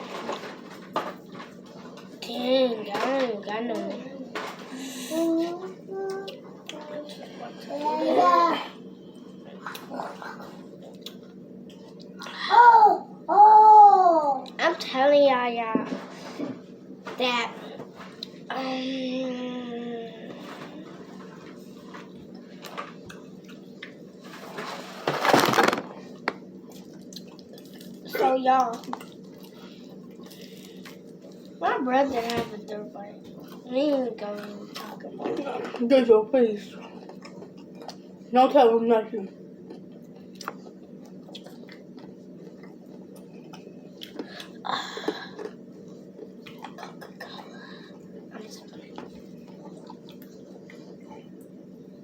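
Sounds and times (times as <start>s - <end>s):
low room hum: 0.0s - 52.0s
chewing crispy chicken: 26.7s - 31.6s, 36.8s - 38.2s, 39.6s - 47.5s, 48.8s - 51.1s.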